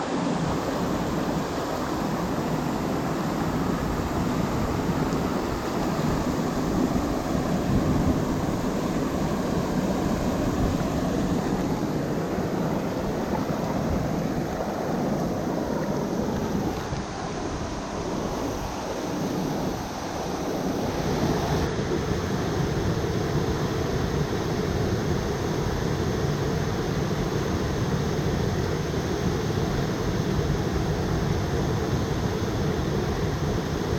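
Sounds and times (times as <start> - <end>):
waterfall rushing: 0.0 - 21.7.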